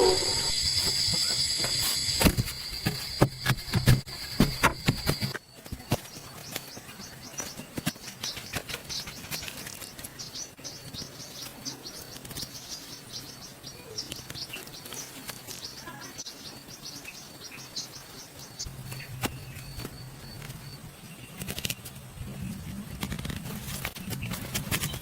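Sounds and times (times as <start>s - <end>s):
small birds chirping: 3.8s - 22.0s.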